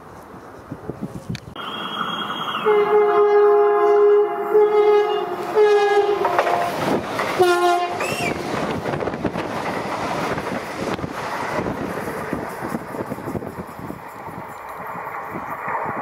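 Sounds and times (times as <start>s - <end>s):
train rushing past: 1.6s - 16.0s
train horn blasts: 2.5s - 6.8s, 7.4s - 8.4s.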